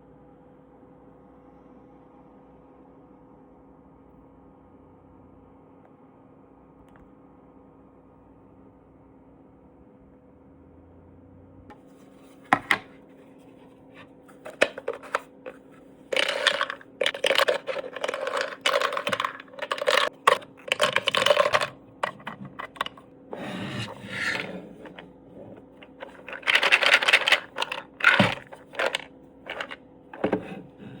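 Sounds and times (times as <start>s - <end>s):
chess pieces scraping: 14.3s - 31.0s
plastic chess pieces clattering: 14.3s - 31.0s.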